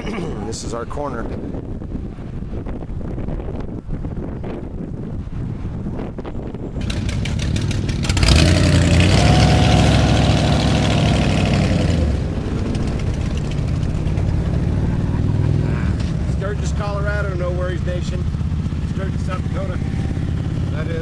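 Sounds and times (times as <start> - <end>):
motorcycle engines passing: 0.0 - 1.2, 6.8 - 21.0.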